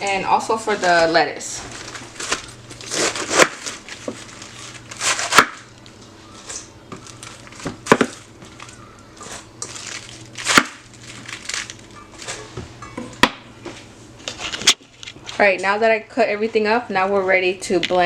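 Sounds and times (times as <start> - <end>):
leafy crinkling: 0.5 - 12.6.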